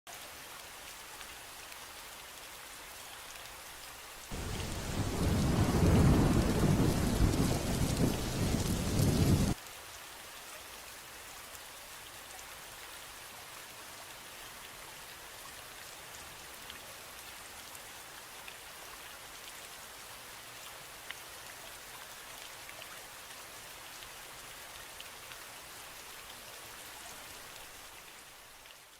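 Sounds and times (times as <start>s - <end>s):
steady rain falling: 0.1s - 28.9s
raindrop ticks: 3.3s - 9.8s
thunder rumbling: 4.3s - 9.6s.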